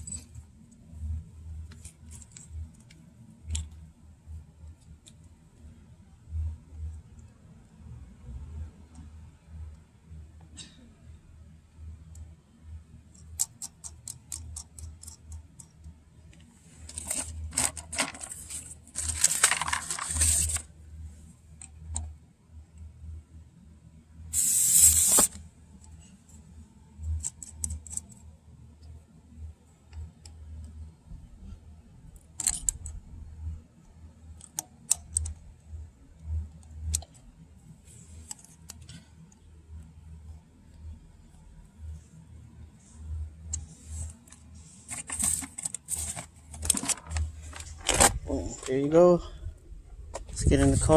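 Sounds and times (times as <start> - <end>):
small metal parts clicking: 13.1 - 15.9, 27.1 - 28.2, 32.2 - 33.0
short air hiss: 24.3 - 25.4.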